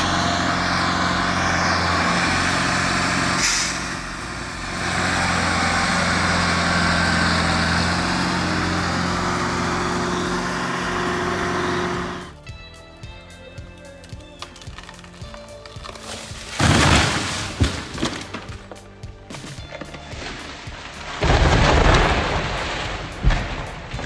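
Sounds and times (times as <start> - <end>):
air hiss: 0.0 - 6.7
truck diesel engine running: 0.0 - 12.4.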